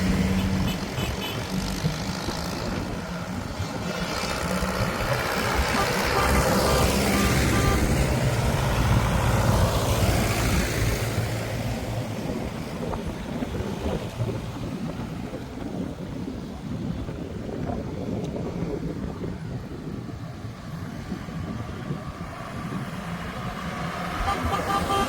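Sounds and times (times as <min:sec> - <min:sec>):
tractor engine running: 0:00.0 - 0:10.4.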